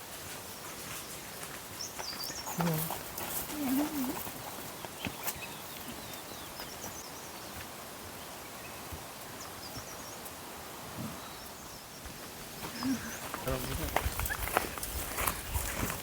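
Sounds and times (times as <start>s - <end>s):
bird chirping: 1.8s - 7.6s, 11.0s - 15.0s.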